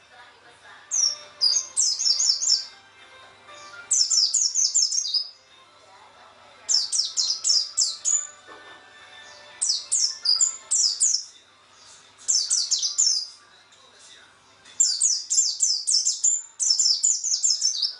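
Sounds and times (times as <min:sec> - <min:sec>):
bird chirping: 0:00.9 - 0:02.8, 0:03.8 - 0:05.4, 0:06.7 - 0:08.4, 0:09.2 - 0:11.4, 0:12.3 - 0:13.4, 0:14.8 - 0:17.9.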